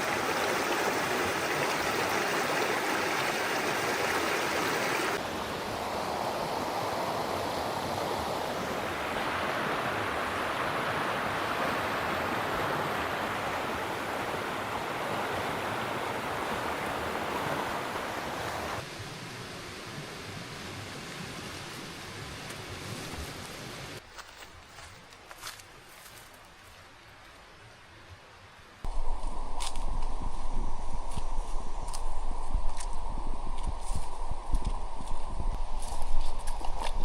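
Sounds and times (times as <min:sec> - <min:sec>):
running water rushing: 0:00.0 - 0:06.2, 0:07.6 - 0:19.0.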